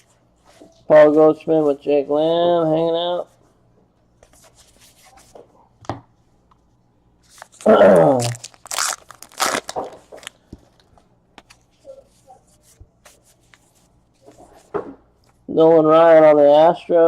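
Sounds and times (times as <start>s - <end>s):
wrapper being torn open: 7.3s - 10.4s.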